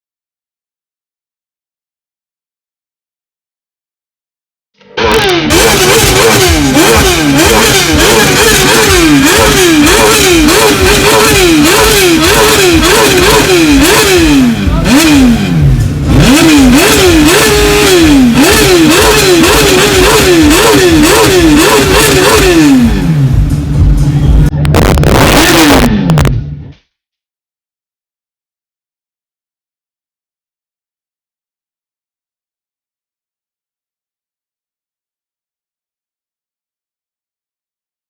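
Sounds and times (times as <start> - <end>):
exhaust crackle: 5.0 - 26.7
engine revving in throttle blips: 5.0 - 26.8.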